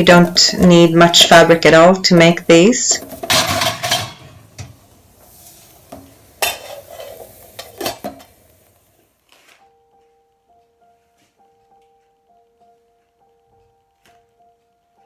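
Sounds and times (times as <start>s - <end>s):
faint simmering hiss: 0.0s - 9.2s
metal utensil clinking against pot: 2.9s - 4.7s, 6.4s - 8.3s
soft music tones: 9.2s - 15.0s.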